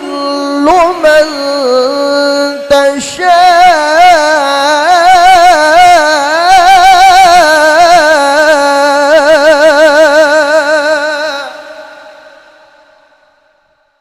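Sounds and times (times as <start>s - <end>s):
high voice reciting melodically: 0.0s - 11.7s.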